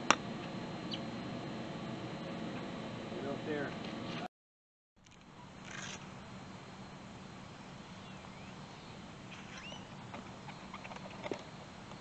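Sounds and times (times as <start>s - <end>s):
steady background hiss: 5.1s - 12.0s
short bird chirps: 9.4s - 9.9s.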